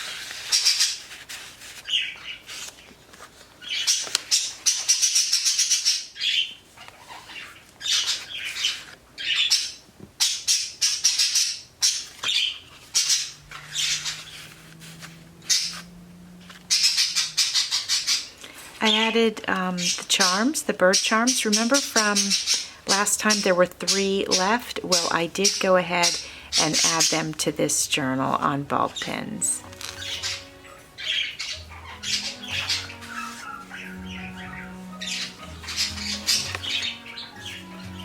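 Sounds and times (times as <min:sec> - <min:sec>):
paper rustling and crinkling: 0:00.0 - 0:04.9, 0:06.8 - 0:09.1, 0:11.9 - 0:16.7, 0:29.6 - 0:33.8.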